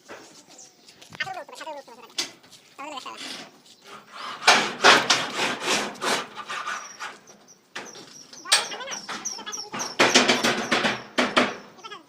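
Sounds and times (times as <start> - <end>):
hand saw cutting: 3.1 - 7.3.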